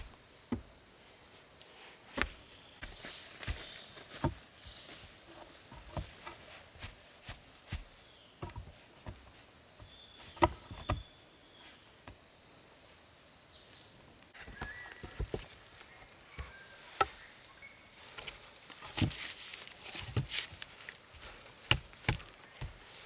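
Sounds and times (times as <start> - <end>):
knocks and clicks of wood: 3.4 - 4.4, 5.4 - 6.4, 7.7 - 11.1, 18.2 - 19.3, 21.6 - 22.9.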